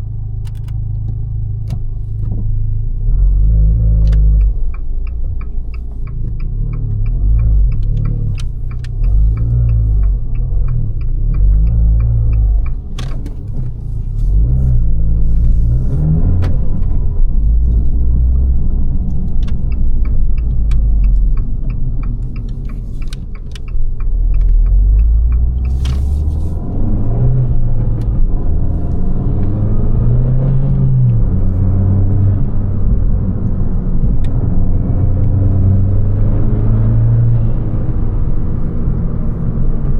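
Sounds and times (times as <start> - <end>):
car engine rumbling: 0.0 - 39.9
sharp clicks: 4.0 - 14.5, 19.0 - 27.0.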